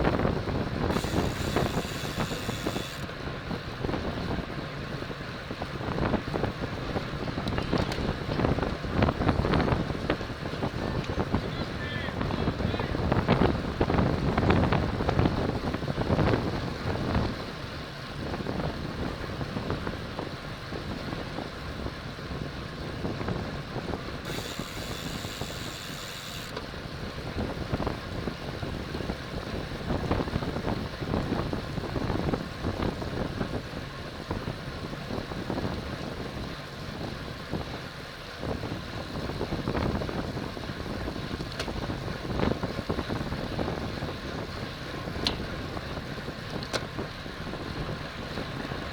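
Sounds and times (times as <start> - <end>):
wind rushing over microphone: 0.0 - 48.9.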